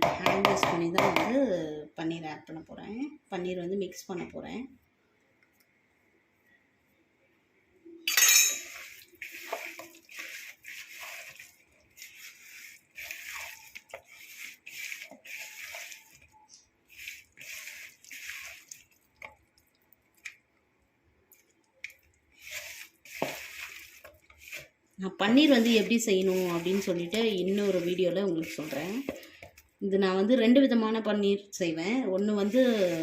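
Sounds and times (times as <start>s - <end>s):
hands mixing wet marinade: 8.6s - 30.5s, 32.1s - 33.0s.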